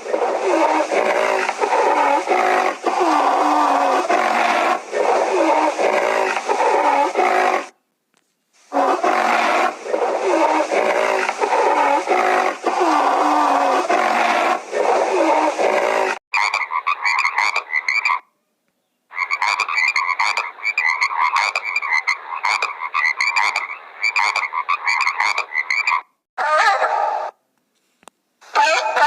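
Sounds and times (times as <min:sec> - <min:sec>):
animal calling: 0:00.0 - 0:07.7, 0:08.7 - 0:18.3.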